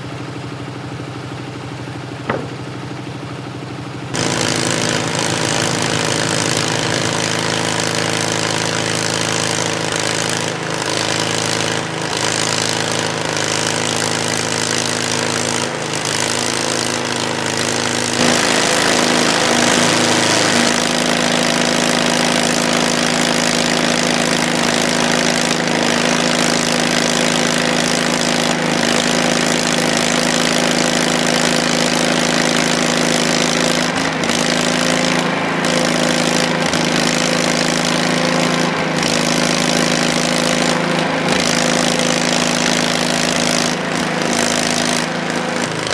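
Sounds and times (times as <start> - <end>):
gasoline engine running: 0.0 - 45.9.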